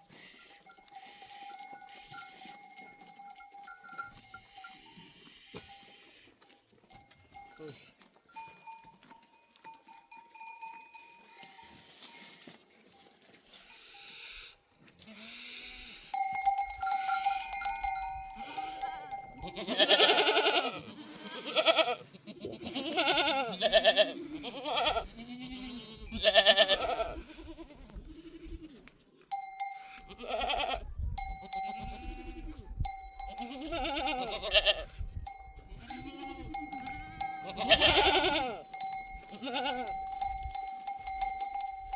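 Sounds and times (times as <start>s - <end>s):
goat bells clinking: 0.0s - 15.1s, 15.8s - 20.9s, 29.3s - 41.9s
goats bleating loudly: 15.0s - 16.3s, 17.1s - 28.8s, 29.8s - 30.8s, 31.4s - 35.0s, 35.6s - 40.2s.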